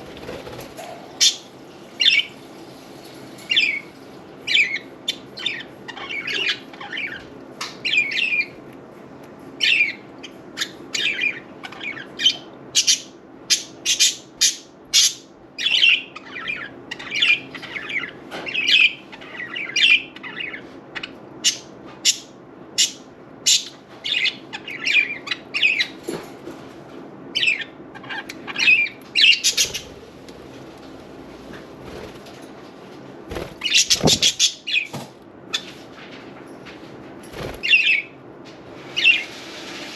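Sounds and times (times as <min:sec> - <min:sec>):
budgerigars chirping and squawking: 0:04.5 - 0:08.6, 0:09.6 - 0:26.0, 0:27.4 - 0:30.2, 0:33.3 - 0:35.8, 0:37.4 - 0:38.1.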